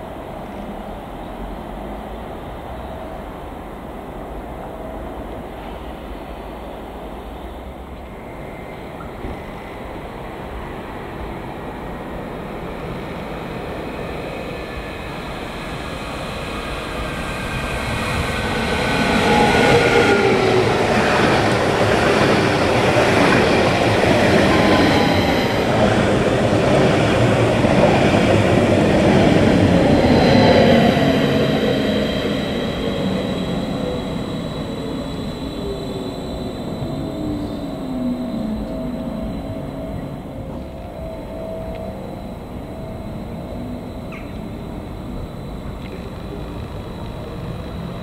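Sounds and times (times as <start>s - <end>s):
rail and wheel noise: 0.0s - 48.0s
train passing: 0.0s - 48.0s
thin whining tones: 13.9s - 48.0s.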